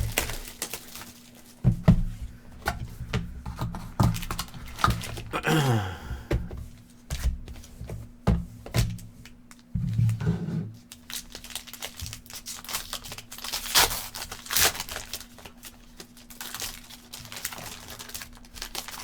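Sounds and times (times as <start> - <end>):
wrapping ripping: 0.0 - 1.6, 10.9 - 19.0
cardboard box knocking on table: 1.6 - 5.0.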